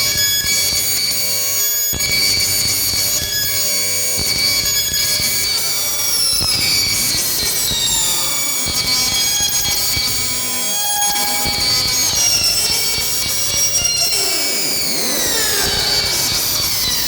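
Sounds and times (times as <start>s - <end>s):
droning synthesizer music: 10.2s - 17.0s
synthesizer pitches sweeping downward: 10.7s - 13.3s.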